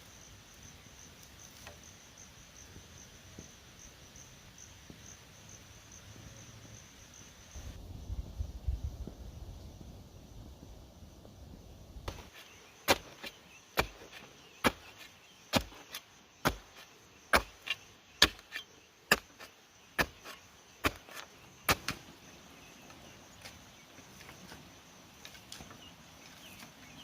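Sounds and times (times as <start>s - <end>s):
blade chopping bamboo: 12.1s - 22.0s.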